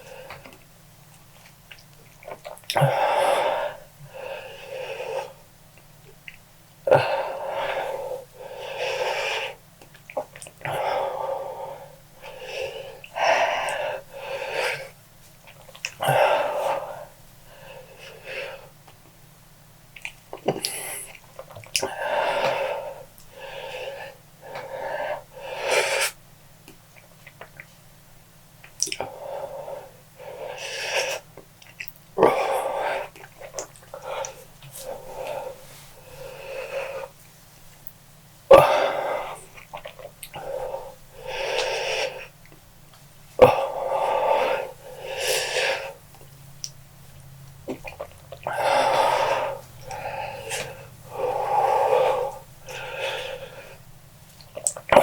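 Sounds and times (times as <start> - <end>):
man breathing hard wheezily: 6.9 - 9.6, 10.7 - 15.0, 21.9 - 26.2, 33.9 - 37.2, 38.5 - 39.6, 40.4 - 42.4, 43.4 - 46.0, 48.4 - 53.9
mouth clicks: 28.6 - 29.1, 54.4 - 55.0
person panting heavily: 33.9 - 37.2, 43.5 - 46.0, 48.4 - 53.9.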